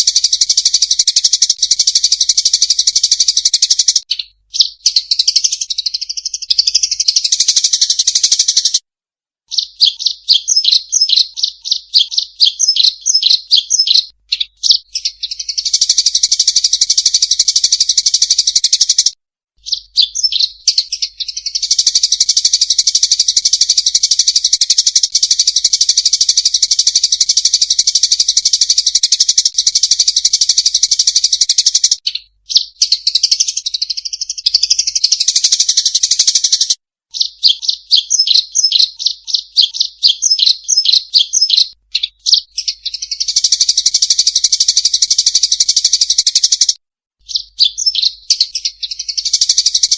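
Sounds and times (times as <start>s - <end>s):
sparrows chirping: 0.0s - 8.8s, 9.5s - 49.9s.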